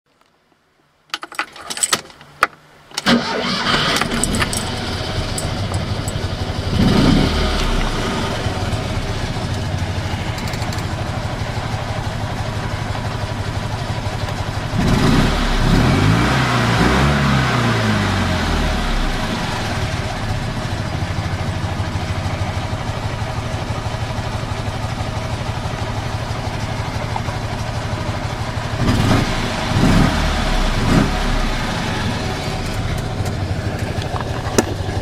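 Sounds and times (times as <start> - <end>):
engine cranking: 3.0 - 11.1, 32.4 - 35.0
car engine idling and revving: 3.2 - 35.0
key clicks and rattles: 4.0 - 6.2.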